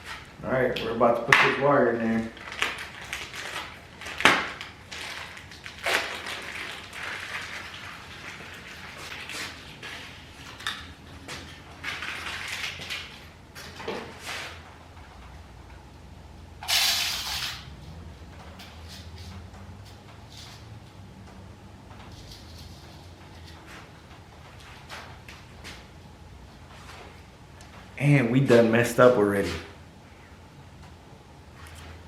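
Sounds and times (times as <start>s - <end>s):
packaging rustling: 2.3s - 14.2s.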